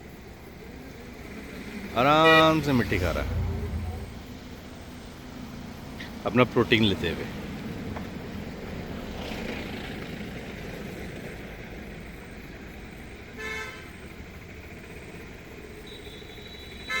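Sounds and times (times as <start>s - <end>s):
outdoor background noise: 0.0s - 17.0s
vehicle horn toot: 2.1s - 3.9s, 13.4s - 13.9s, 15.8s - 17.0s.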